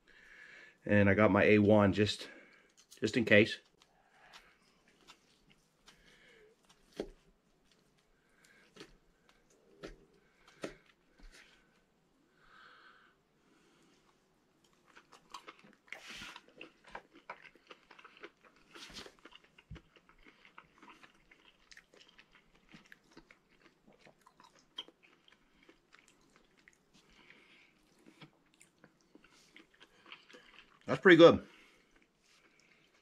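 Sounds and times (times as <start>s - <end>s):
man chewing with wet mouth clicks: 14.6s - 30.9s.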